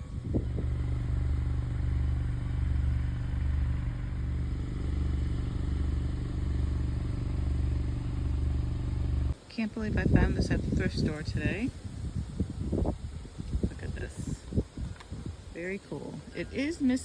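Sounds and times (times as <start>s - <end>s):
motorcycle engine idling: 0.0s - 9.4s.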